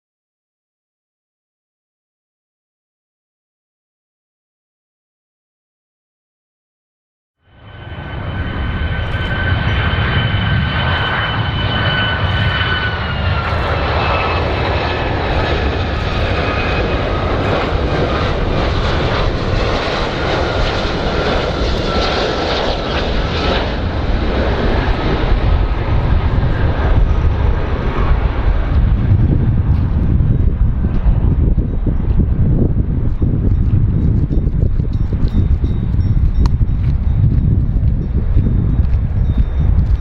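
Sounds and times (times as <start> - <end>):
airplane engines roaring: 7.4 - 40.0.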